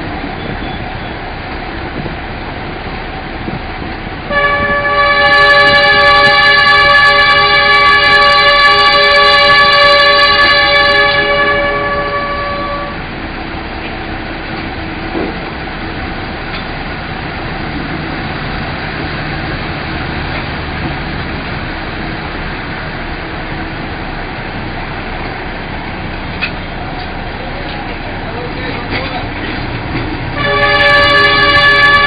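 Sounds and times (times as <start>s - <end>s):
passenger train running on track: 0.0s - 32.0s
train horn: 4.3s - 13.1s, 30.4s - 32.0s.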